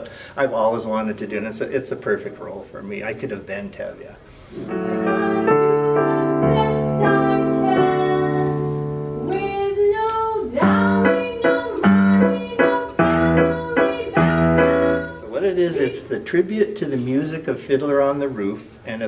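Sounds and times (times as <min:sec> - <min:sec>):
person singing: 0:04.7 - 0:15.4
piano chords: 0:04.7 - 0:15.9.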